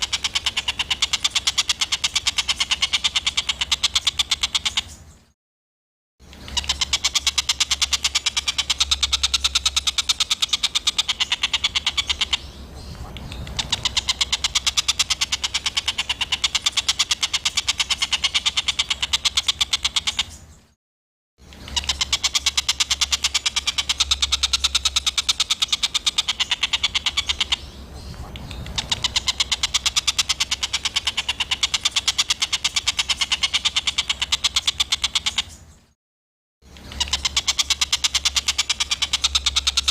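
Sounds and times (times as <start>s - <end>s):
songbird chattering: 0.0s - 5.3s, 6.3s - 20.6s, 21.4s - 35.7s, 36.7s - 39.9s.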